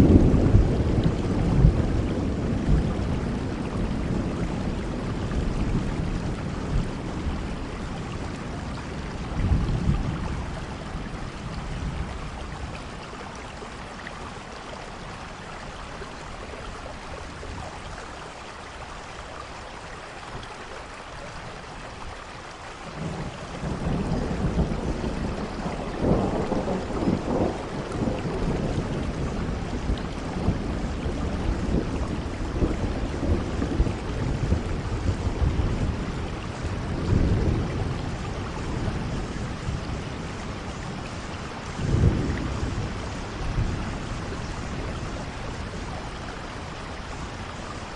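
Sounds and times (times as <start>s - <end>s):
thunder rumbling: 0.0s - 13.3s, 22.9s - 47.9s
steady rainfall: 0.0s - 47.9s.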